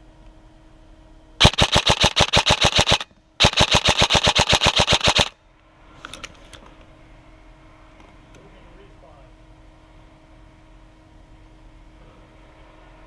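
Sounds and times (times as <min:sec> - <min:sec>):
airsoft gun firing full-auto: 0:01.4 - 0:05.3.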